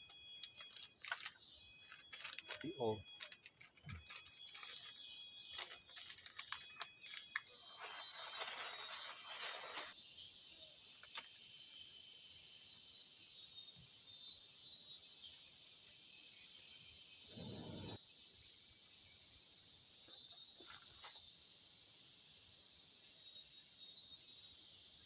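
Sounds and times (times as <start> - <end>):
chorus of forest insects: 0.0 - 25.0
rustling noise: 7.5 - 10.0.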